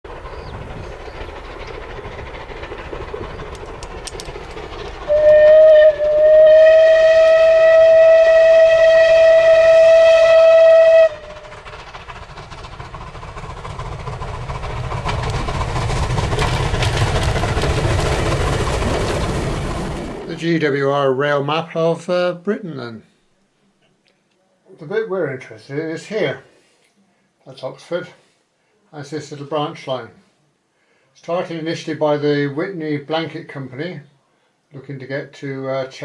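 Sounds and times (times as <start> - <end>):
steam hiss: 0.1 - 20.4
rumble: 0.1 - 20.7
steam locomotive whistle: 5.1 - 11.5.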